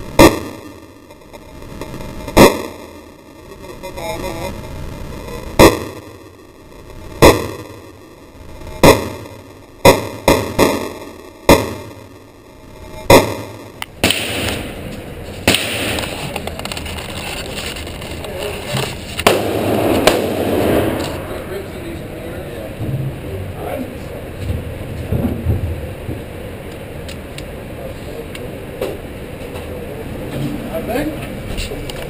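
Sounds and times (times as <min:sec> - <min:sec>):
steady background noise: 0:00.0 - 0:32.0
handgun shots: 0:14.0 - 0:14.7, 0:15.5 - 0:16.2, 0:19.2 - 0:21.2.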